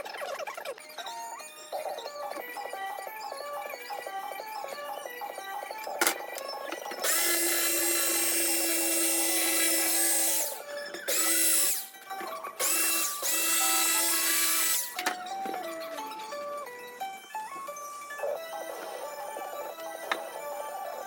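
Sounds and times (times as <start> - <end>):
electric saw cutting foam: 6.7 - 16.8.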